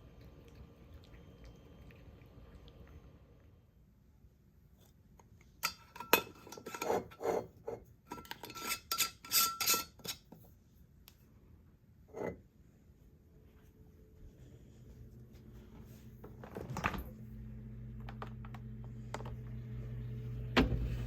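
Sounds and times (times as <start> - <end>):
utensils scraping cookware: 5.6 - 10.3.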